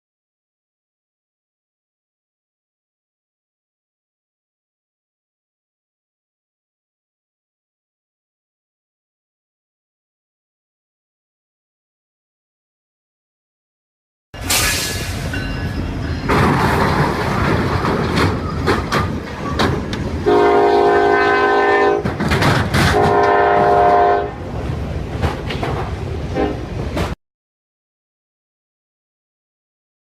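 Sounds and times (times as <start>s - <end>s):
train rumbling and clattering: 14.4s - 27.2s
train horn blasts: 20.2s - 22.2s, 22.8s - 24.4s, 26.3s - 26.8s.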